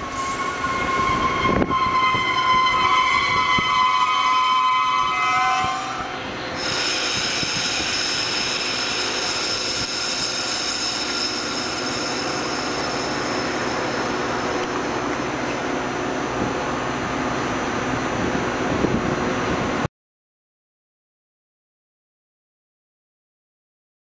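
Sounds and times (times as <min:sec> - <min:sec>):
wheel squeal: 0:00.0 - 0:14.6
train wheels rumbling on rails: 0:00.0 - 0:19.9.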